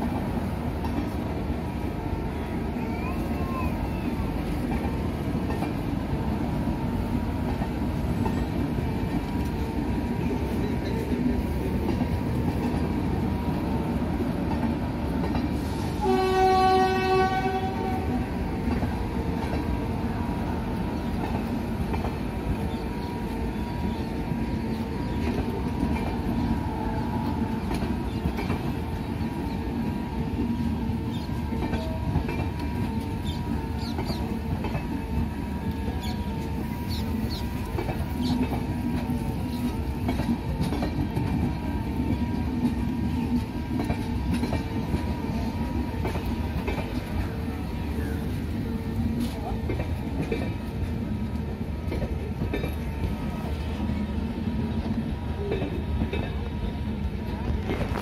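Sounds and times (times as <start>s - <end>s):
train wheels rumbling on rails: 0.0s - 58.0s
locomotive horn blast: 16.0s - 18.2s.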